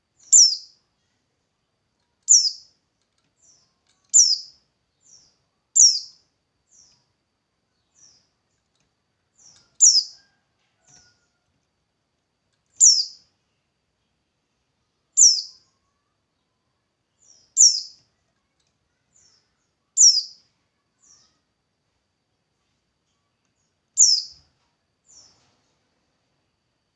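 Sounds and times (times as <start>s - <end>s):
songbird high downward call: 12.8s - 13.2s, 15.2s - 15.7s.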